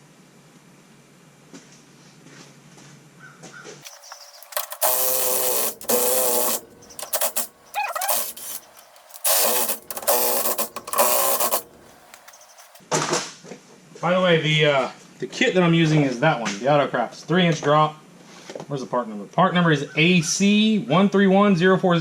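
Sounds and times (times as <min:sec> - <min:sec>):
impact wrench whining: 0:03.8 - 0:12.8.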